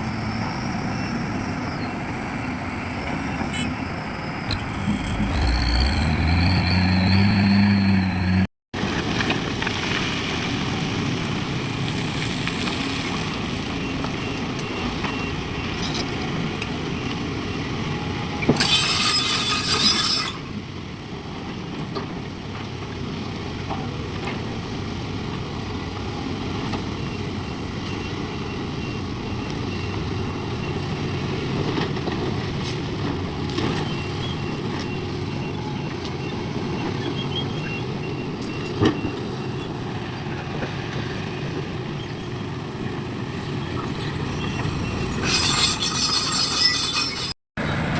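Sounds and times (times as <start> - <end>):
heavy diesel machinery running: 0.0 - 8.5
short pitched tone: 4.4 - 8.4.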